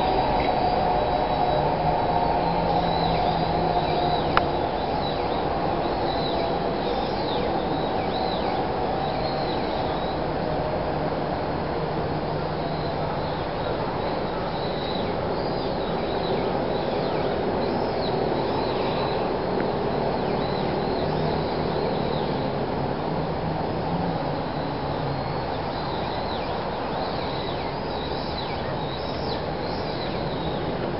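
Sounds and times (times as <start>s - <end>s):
train running on track: 0.0s - 28.3s
steady background noise: 0.0s - 30.9s
bird chirping: 2.5s - 10.2s.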